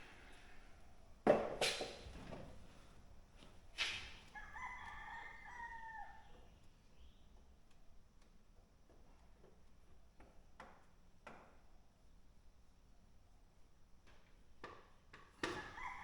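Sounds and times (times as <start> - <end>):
rooster crowing: 4.3 - 6.4, 15.5 - 16.0.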